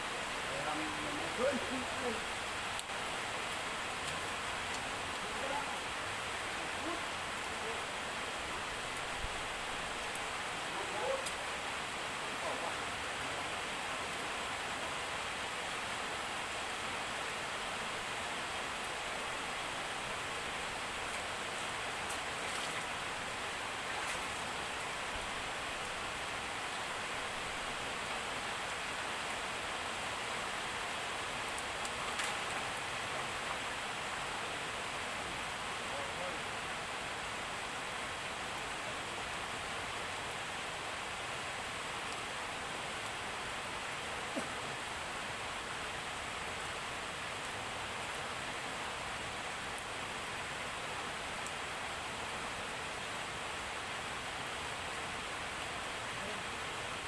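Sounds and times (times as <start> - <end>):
heavy rain falling: 0.0 - 57.0
faint ticks: 2.7 - 2.9.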